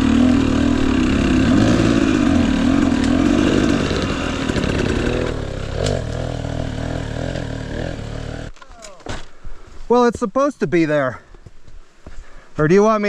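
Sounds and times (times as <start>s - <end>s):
dirt bike engine running: 0.0s - 8.5s.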